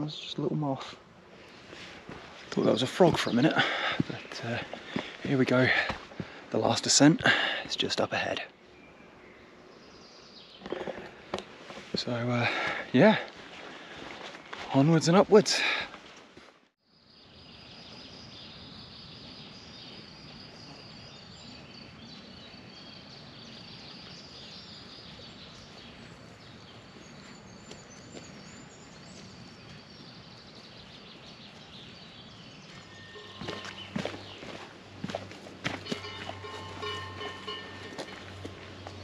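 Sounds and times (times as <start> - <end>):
birds chirping: 0.0 - 16.0, 16.9 - 39.0
footsteps: 1.5 - 6.4, 32.7 - 39.0.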